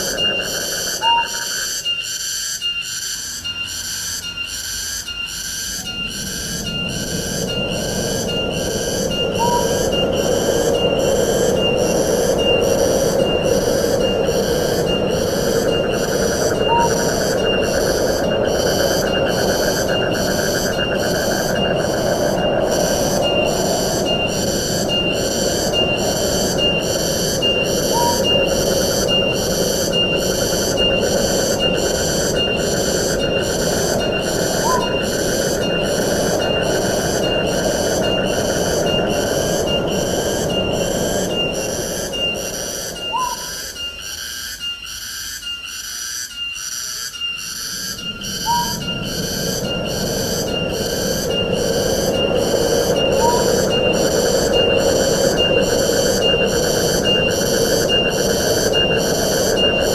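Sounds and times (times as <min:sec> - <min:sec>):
bird whistled call: 0:00.0 - 0:07.6, 0:09.1 - 0:10.2, 0:16.6 - 0:17.8, 0:26.6 - 0:29.4, 0:34.0 - 0:35.8, 0:42.9 - 0:49.1, 0:53.0 - 0:54.8
high-pitched pulsing call: 0:00.0 - 0:44.0, 0:46.9 - 0:59.9
wind through forest: 0:00.0 - 0:59.9.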